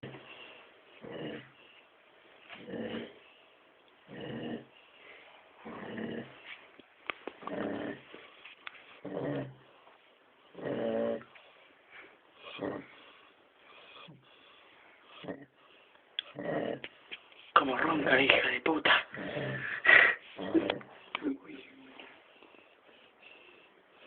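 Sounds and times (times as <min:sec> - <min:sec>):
dog snoring: 0:01.0 - 0:01.8, 0:02.5 - 0:03.4, 0:04.0 - 0:04.8, 0:05.6 - 0:06.5, 0:07.4 - 0:09.8, 0:10.4 - 0:11.6, 0:12.3 - 0:17.0, 0:18.9 - 0:20.9.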